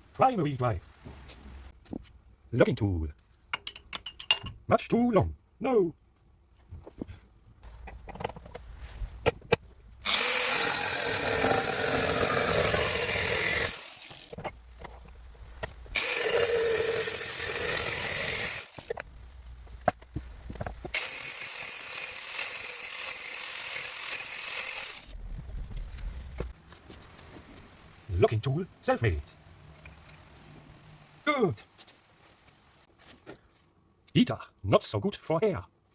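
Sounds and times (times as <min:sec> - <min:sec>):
clinks and clicks of tool work: 0:01.2 - 0:04.6, 0:06.8 - 0:26.9, 0:29.2 - 0:30.7
power tool running: 0:10.0 - 0:14.4, 0:16.0 - 0:18.9, 0:20.9 - 0:25.1.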